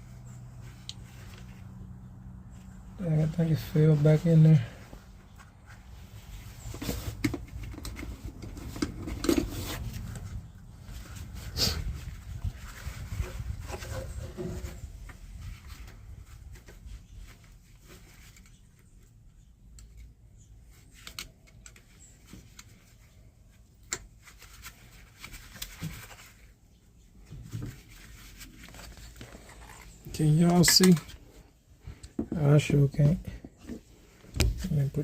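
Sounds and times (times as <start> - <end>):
hands scraping and clicking parts: 6.6 - 10.4, 17.8 - 23.0, 27.7 - 31.2.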